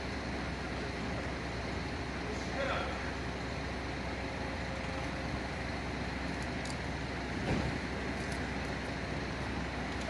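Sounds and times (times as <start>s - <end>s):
traffic noise: 0.0s - 10.0s
vehicle engine running: 0.0s - 10.0s
loud low thump: 7.4s - 7.8s.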